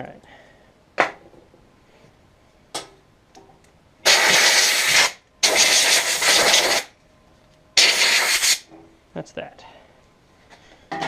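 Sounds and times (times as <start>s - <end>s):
compressed air blowgun hissing: 4.0s - 6.9s, 7.8s - 8.6s.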